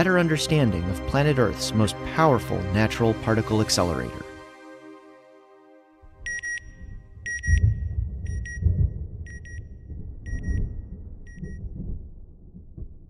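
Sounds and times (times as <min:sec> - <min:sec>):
low rumble: 0:06.0 - 0:13.0.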